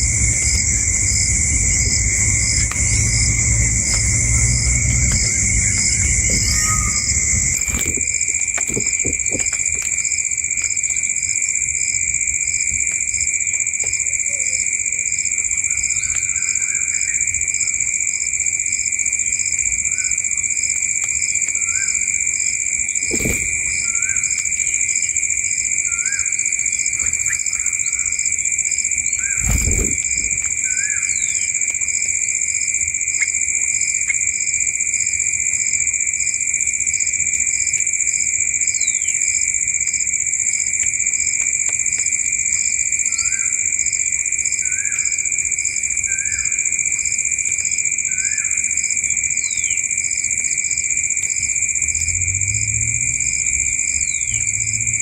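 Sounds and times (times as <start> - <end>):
shrill animal chorus: 0.0 - 8.0.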